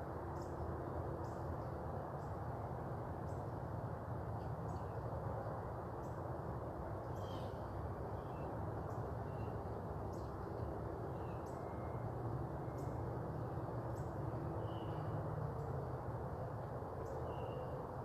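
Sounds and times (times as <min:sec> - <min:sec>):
low rumble and hiss: 0:00.0 - 0:18.0
faint bird chirps: 0:07.1 - 0:10.4.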